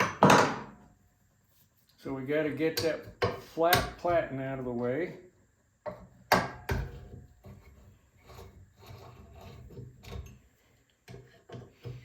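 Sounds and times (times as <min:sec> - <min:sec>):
knocks on metal parts: 0:00.0 - 0:00.8.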